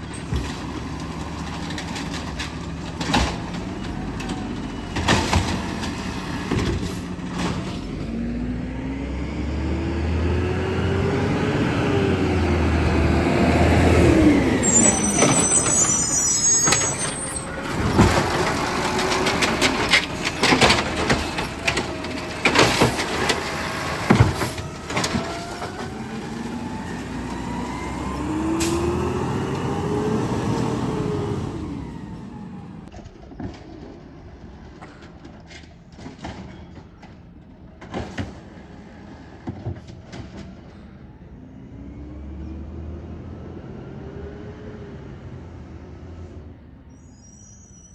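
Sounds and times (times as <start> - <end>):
garbage truck engine: 0.0 - 47.9
high squeal: 14.5 - 18.0, 46.9 - 47.9
loud clanks and bangs: 16.6 - 26.4.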